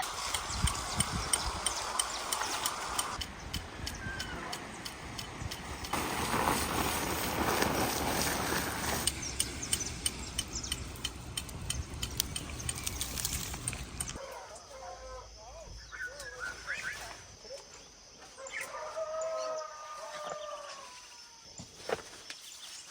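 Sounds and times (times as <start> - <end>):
sharp clicks: 0.0 - 6.0, 9.0 - 14.2
bird calls: 8.9 - 14.7, 15.7 - 19.6.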